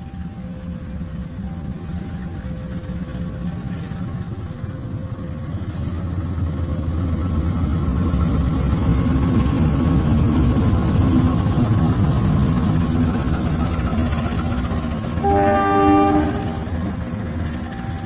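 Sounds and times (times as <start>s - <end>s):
diesel locomotive engine rumbling: 0.0s - 18.0s.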